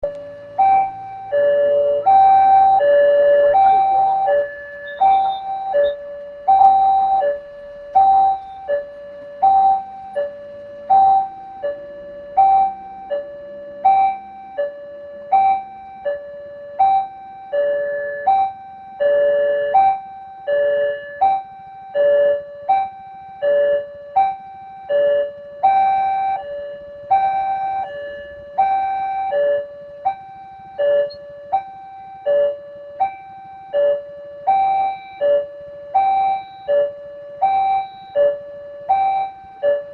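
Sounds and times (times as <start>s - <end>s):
two-note crossing warning chime: 0.0s - 18.3s.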